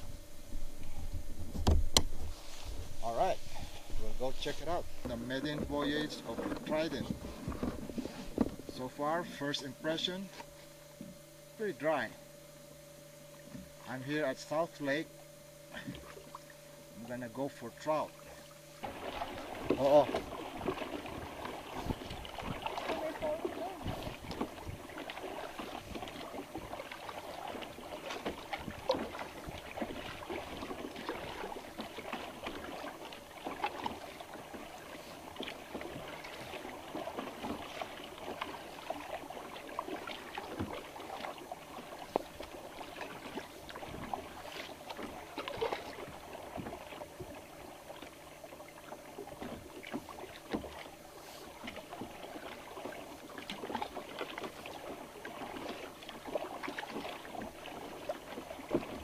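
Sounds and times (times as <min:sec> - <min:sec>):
water lapping against plastic hull: 0:00.0 - 0:12.0, 0:13.2 - 0:59.0.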